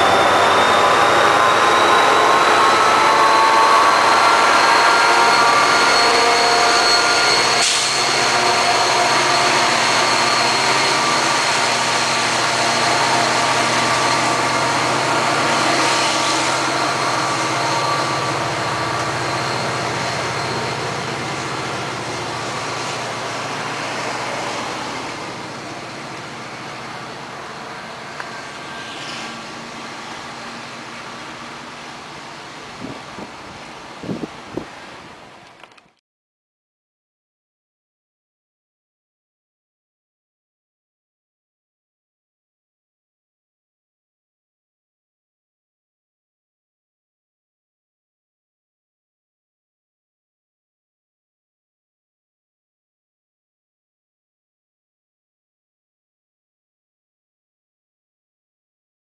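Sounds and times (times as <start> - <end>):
high wheel squeal: 0.0 - 33.3
train running past: 0.0 - 35.6.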